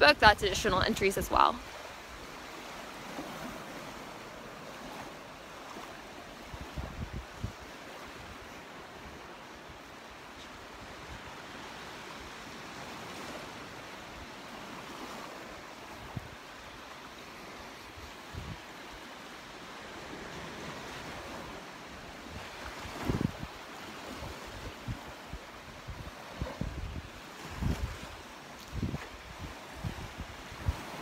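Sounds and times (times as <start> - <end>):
surf washing onto beach: 0.0 - 31.0
wind buffeting microphone: 6.4 - 9.3, 17.9 - 18.8, 22.2 - 31.0.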